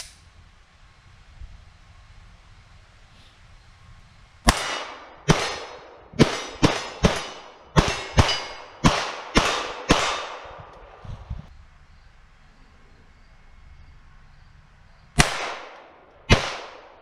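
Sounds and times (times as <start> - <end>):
pistol shots with echo: 4.4 - 10.7, 15.2 - 17.0.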